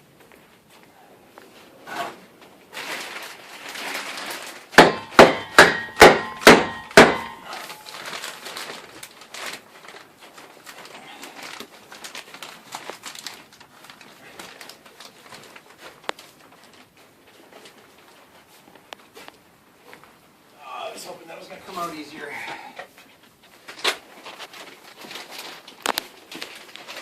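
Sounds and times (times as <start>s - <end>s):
hammer striking wood: 4.8s - 7.4s.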